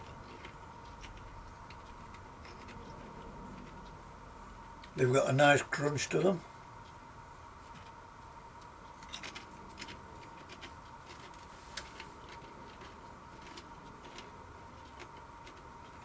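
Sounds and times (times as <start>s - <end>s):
faint steady hum: 0.0s - 16.0s
crisps crunched while chewing: 9.0s - 16.0s.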